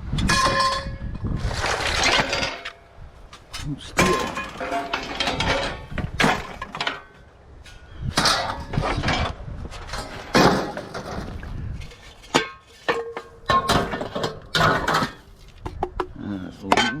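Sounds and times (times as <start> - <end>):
scrap metal clattering: 0.2 - 2.8, 3.4 - 15.8.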